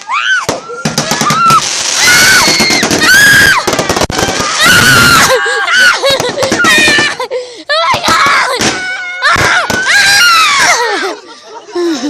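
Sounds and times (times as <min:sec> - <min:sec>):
whistling firework shrieks: 0:00.0 - 0:05.8
fireworks crackling and banging: 0:00.0 - 0:11.0
people screaming and cheering: 0:00.0 - 0:12.0.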